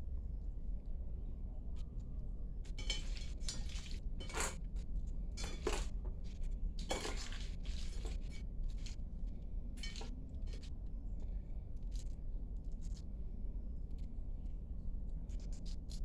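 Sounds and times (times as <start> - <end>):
dishes and cutlery clinking: 2.7 - 4.7, 5.3 - 6.2, 6.8 - 8.9, 9.8 - 10.6.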